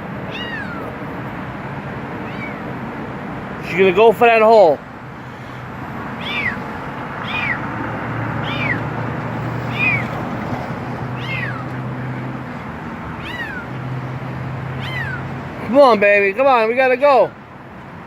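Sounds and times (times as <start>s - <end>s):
kitten meowing: 0.3s - 1.0s, 2.2s - 2.7s, 6.2s - 7.6s, 8.4s - 8.9s, 9.6s - 10.2s, 11.2s - 11.8s, 13.1s - 13.8s, 14.7s - 15.3s.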